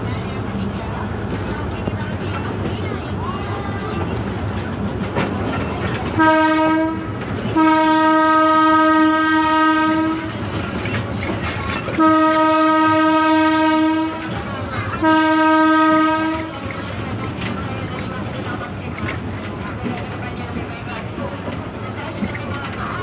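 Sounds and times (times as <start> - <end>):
train rumbling: 0.0 - 23.0
train horn blasts: 6.2 - 10.4, 11.9 - 14.3, 15.0 - 16.6.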